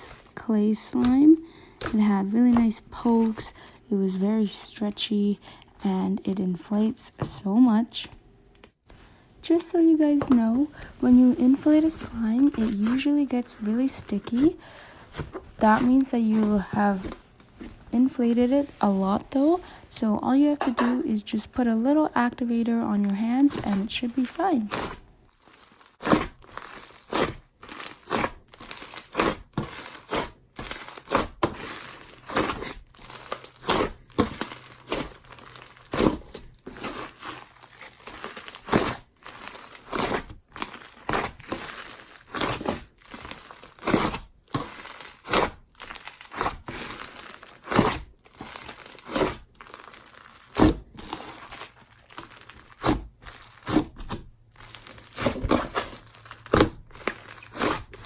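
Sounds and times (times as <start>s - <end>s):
hands squishing sticky slime: 25.6s - 58.0s.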